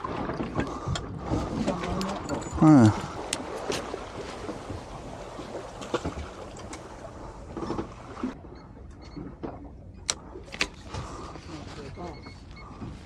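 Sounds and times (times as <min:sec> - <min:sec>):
sea noise: 0:00.0 - 0:13.0
wind: 0:00.0 - 0:13.0.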